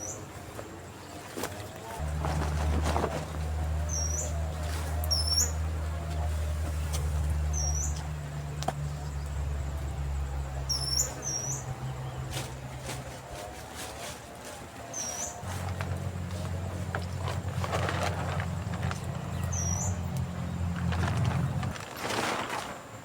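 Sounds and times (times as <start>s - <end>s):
low steady hum: 1.9s - 13.2s
bird chirping: 2.0s - 12.7s, 14.9s - 21.7s.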